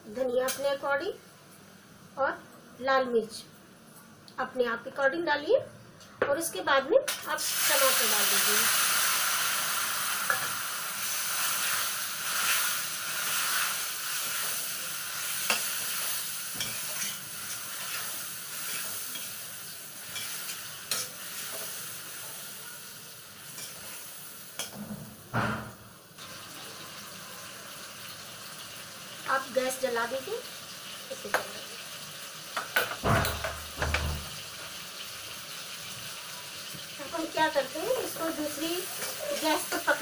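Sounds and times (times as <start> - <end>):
tomatoes sizzling in hot oil: 0.0 - 1.4, 6.5 - 40.0
loud knock: 24.9 - 25.8.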